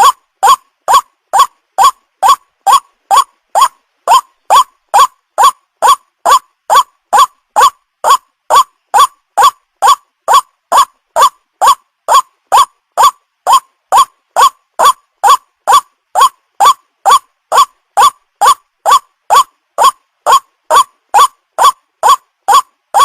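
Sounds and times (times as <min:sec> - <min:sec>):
waterhen call: 0:00.0 - 0:23.0.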